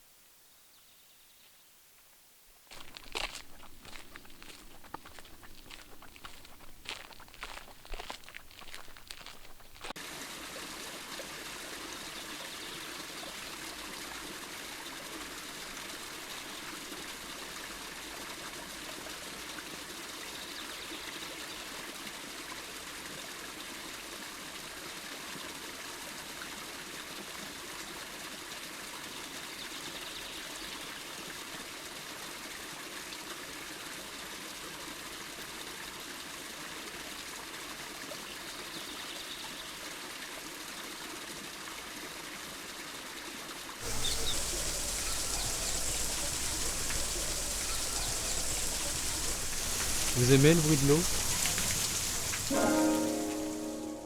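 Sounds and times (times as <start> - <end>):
water running and trickling: 2.7 - 20.0, 43.8 - 53.7.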